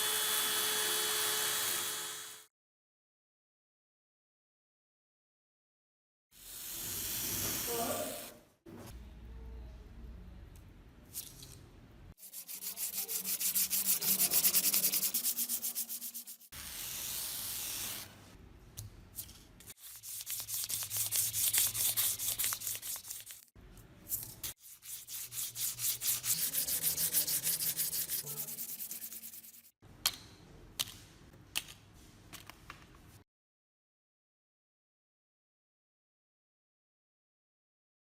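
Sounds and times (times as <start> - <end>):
hand sanding strokes: 12.2 - 18.0, 19.7 - 23.4, 24.4 - 29.7.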